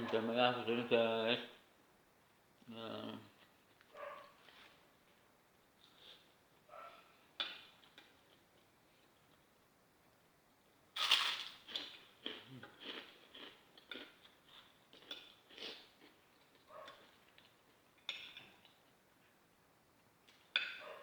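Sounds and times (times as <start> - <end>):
chewing crunchy food: 11.0 - 19.0.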